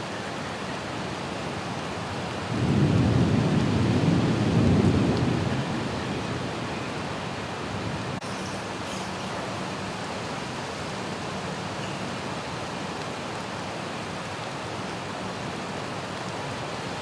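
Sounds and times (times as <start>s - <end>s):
rain hissing: 0.0s - 17.0s
thunder rumbling: 2.3s - 8.2s.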